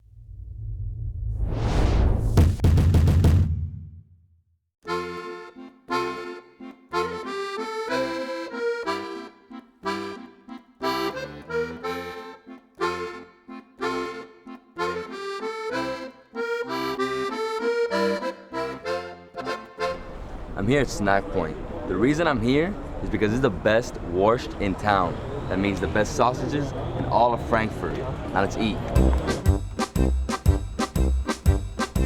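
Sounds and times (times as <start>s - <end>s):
deep rumbling intro sound: 0.0s - 4.2s
bouncy squeezebox-style music: 4.9s - 20.0s, 29.0s - 32.0s.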